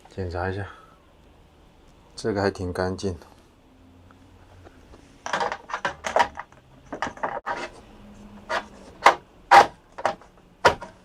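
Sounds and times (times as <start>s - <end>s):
hard plastic clicks and knocks: 9.0s - 11.0s.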